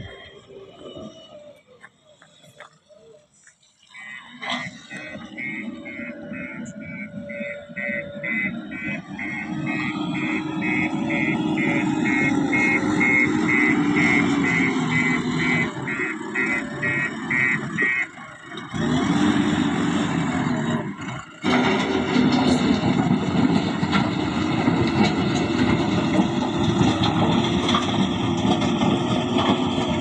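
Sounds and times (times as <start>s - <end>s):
diesel engine running: 0.0s - 30.0s
reversing alarm beeping: 3.8s - 18.3s.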